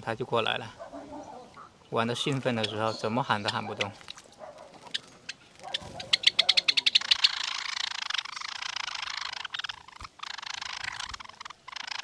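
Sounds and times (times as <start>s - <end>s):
bird splashing and fluttering in water: 3.8s - 6.3s.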